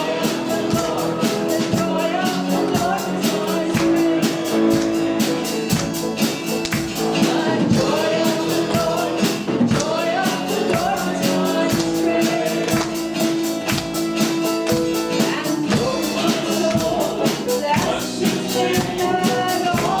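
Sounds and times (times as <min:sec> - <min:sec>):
people singing: 0:00.0 - 0:20.0
worship band playing: 0:00.0 - 0:20.0.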